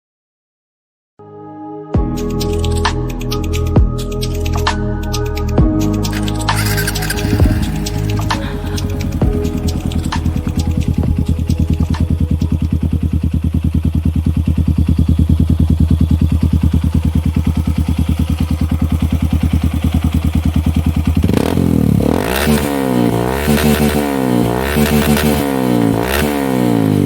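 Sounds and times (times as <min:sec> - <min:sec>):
motorcycle idling and revving: 0:06.1 - 0:27.0.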